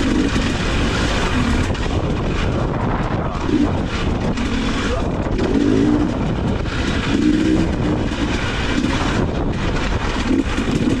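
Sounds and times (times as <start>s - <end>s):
dirt bike engine revving: 0.0s - 2.6s
wind rumble on microphone: 0.0s - 11.0s.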